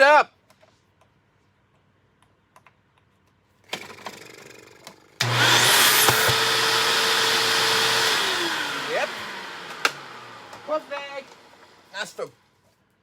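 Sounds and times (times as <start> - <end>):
vacuum cleaner motor whining: 5.2 - 11.9.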